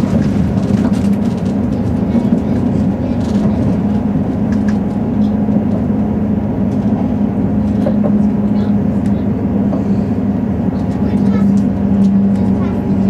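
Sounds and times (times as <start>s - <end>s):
constant low hum: 0.0s - 13.0s
train wheels rumbling on track: 0.0s - 13.0s.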